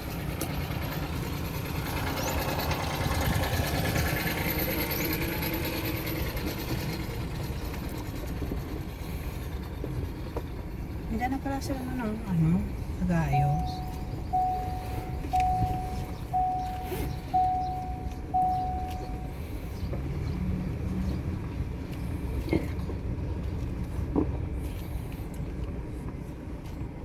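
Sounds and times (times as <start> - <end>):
heavy engine running: 0.0 - 27.0
machine warning beeper: 13.1 - 19.6.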